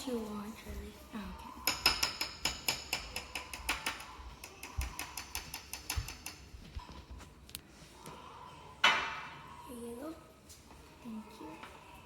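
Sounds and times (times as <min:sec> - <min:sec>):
spoon tapping against a mug: 0:01.6 - 0:06.5.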